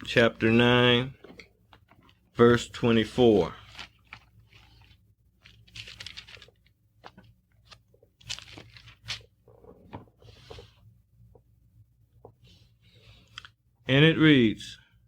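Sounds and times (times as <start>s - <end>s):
pages turning: 2.9s - 10.8s.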